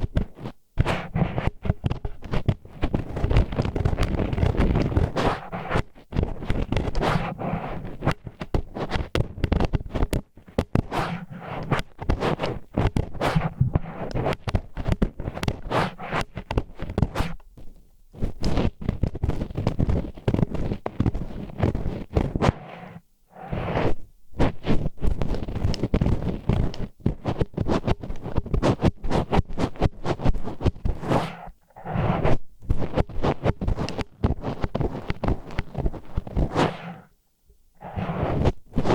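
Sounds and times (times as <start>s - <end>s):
chopsticks scratching microphone: 0.0s - 37.2s, 37.8s - 38.9s
wooden chopsticks scraping: 13.2s - 14.4s, 21.6s - 26.8s, 30.2s - 37.1s, 37.8s - 38.9s.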